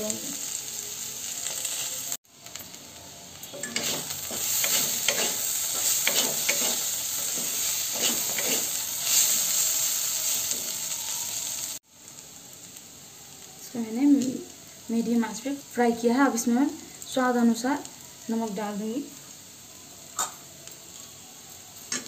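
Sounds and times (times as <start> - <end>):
vegetables sizzling in hot oil: 0.0 - 22.0
wooden spatula scraping a pan: 3.6 - 9.7.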